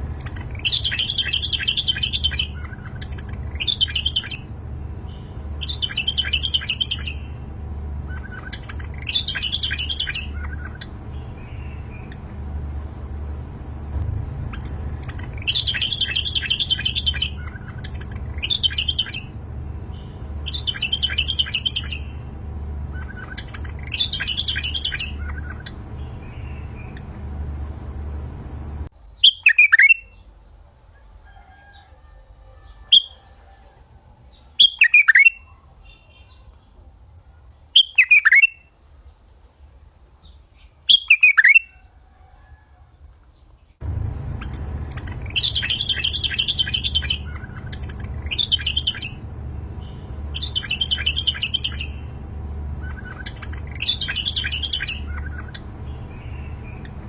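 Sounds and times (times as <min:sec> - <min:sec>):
low steady rumble: 0:00.0 - 0:29.2, 0:41.8 - 0:57.0
songbirds chirping: 0:00.0 - 0:57.0
bird downward sweeping call: 0:00.2 - 0:04.5, 0:05.6 - 0:12.3, 0:14.3 - 0:22.2, 0:22.8 - 0:27.4, 0:44.2 - 0:57.0.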